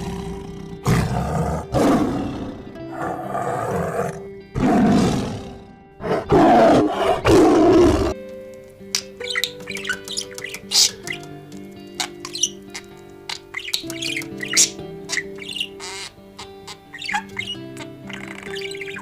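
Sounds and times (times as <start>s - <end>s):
tiger roaring: 0.0s - 8.2s
background music with held notes: 0.0s - 19.0s.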